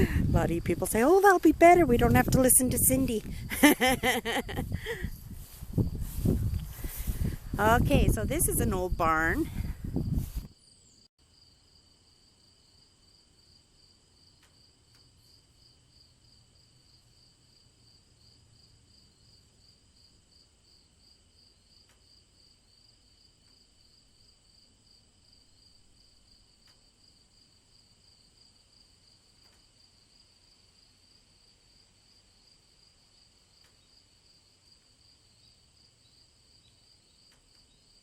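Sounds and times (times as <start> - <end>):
faint low rumble: 0.0 - 10.5
crickets chirping: 2.5 - 38.0.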